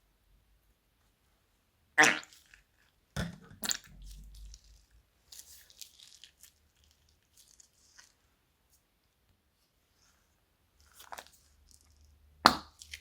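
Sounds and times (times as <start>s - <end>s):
slime squishing: 2.0s - 8.2s, 10.8s - 13.0s.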